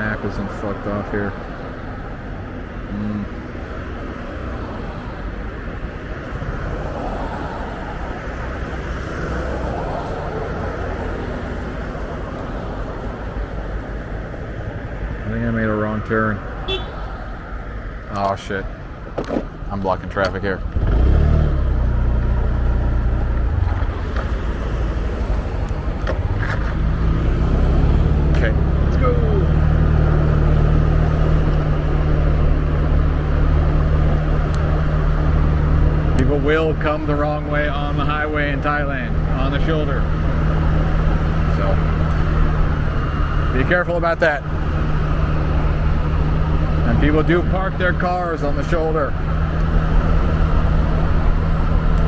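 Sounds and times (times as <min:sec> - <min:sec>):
road and wind noise: 0:00.0 - 0:52.0
traffic noise: 0:00.0 - 0:52.0
motorbike engine rumble: 0:20.2 - 0:52.0.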